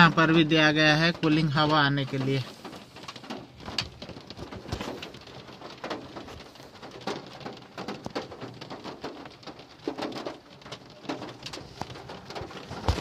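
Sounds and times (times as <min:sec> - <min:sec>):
rain pattering on a car: 0:00.0 - 0:13.0.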